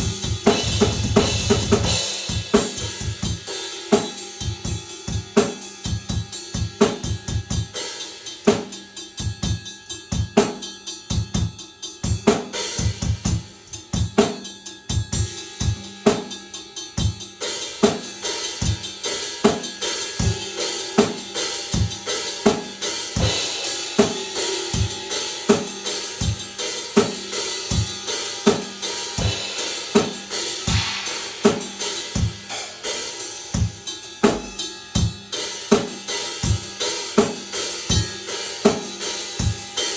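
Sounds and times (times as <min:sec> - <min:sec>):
hi-hat and cymbals: 0:00.0 - 0:39.9
kick drum: 0:29.2 - 0:29.4
snare drum hits: 0:29.9 - 0:32.8.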